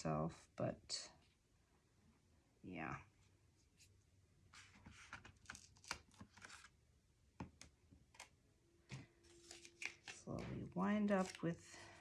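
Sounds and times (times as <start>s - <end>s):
cardstock rustling: 4.5s - 6.7s, 9.2s - 12.0s.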